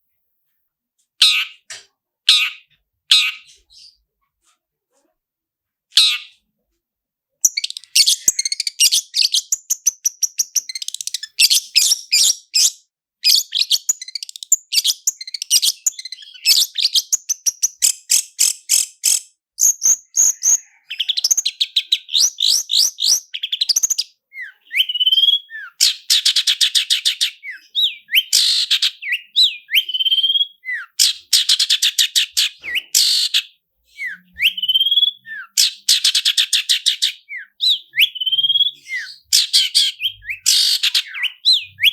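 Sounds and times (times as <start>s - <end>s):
bird singing rattling trills: 7.4s - 41.9s
bird rising whistles: 34.0s - 35.5s, 37.3s - 39.1s.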